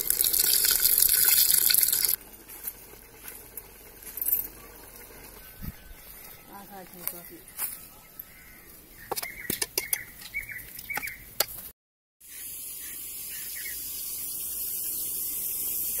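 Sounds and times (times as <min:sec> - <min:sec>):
bird chirping calls: 0:04.5 - 0:11.3, 0:12.2 - 0:15.4.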